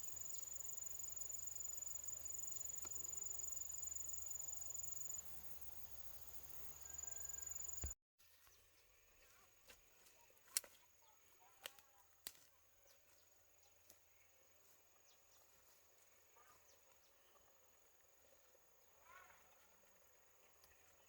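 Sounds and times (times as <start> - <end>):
high insect drone: 0.0 - 8.0.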